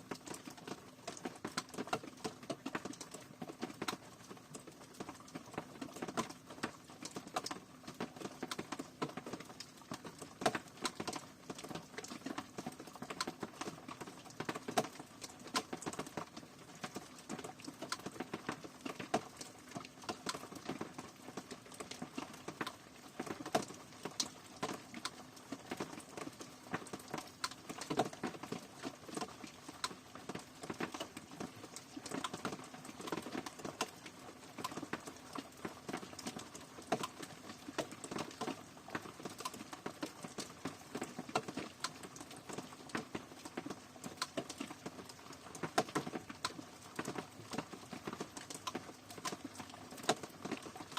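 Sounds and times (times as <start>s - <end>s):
rain pattering: 0.0s - 50.9s.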